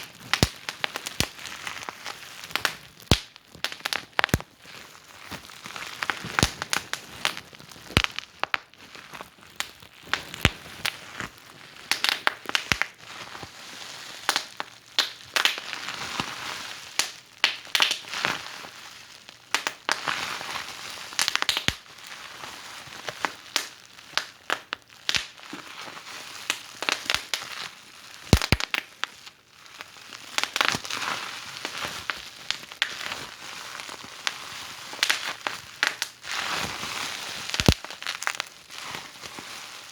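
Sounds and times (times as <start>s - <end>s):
wood fire crackling and popping: 0.0s - 13.0s, 14.3s - 15.8s, 17.0s - 18.4s, 19.5s - 20.1s, 21.1s - 21.9s, 23.2s - 25.6s, 26.5s - 27.5s, 28.2s - 29.1s, 30.4s - 30.9s, 31.6s - 38.5s.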